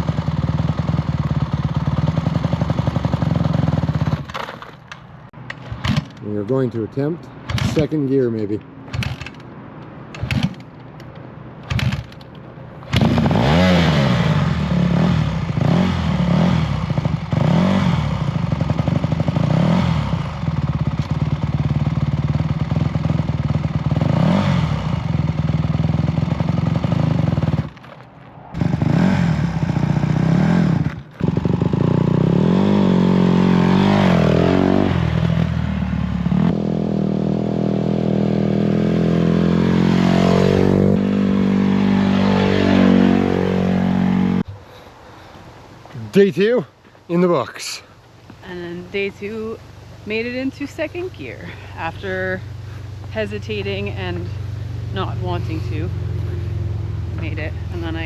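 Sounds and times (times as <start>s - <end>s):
dirt bike engine revving: 0.0s - 4.3s, 7.5s - 8.0s, 12.9s - 27.8s, 28.6s - 44.6s, 48.6s - 58.0s.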